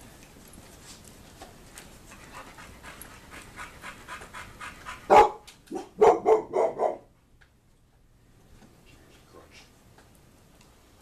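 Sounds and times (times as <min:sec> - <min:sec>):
dog panting: 0:01.9 - 0:05.4
dog barking: 0:05.1 - 0:07.1.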